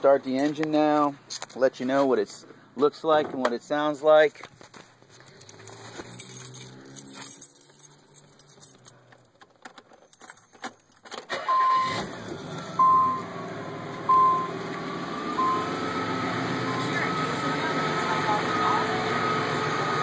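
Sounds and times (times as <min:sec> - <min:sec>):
keys jangling in ignition: 0:00.2 - 0:01.1, 0:05.2 - 0:12.7
car engine starting and running: 0:05.0 - 0:20.0
electronic warning chime: 0:12.8 - 0:13.2, 0:14.1 - 0:14.6, 0:15.4 - 0:15.7.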